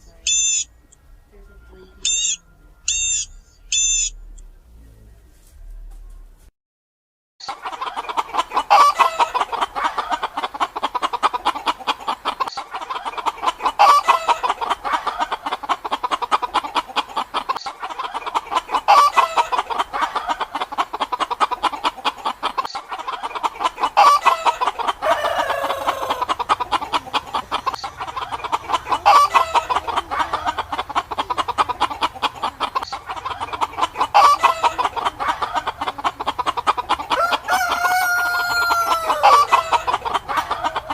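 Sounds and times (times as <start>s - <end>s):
chickens clucking: 7.4s - 40.9s
loud chicken call: 7.5s - 16.5s, 17.6s - 21.8s, 22.7s - 31.1s, 32.9s - 40.9s.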